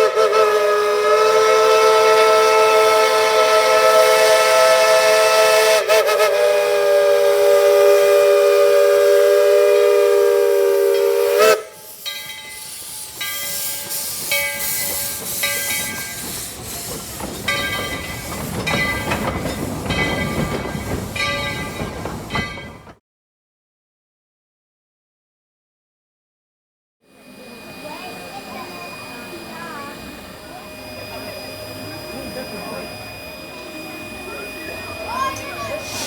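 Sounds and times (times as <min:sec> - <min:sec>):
steam locomotive whistle: 0:00.0 - 0:16.9, 0:27.1 - 0:36.0
steam hissing: 0:00.0 - 0:22.3, 0:27.2 - 0:36.0.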